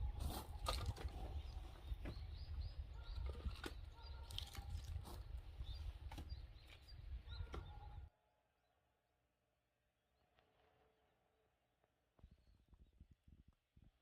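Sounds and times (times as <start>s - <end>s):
small birds chirping: 0.0s - 8.1s.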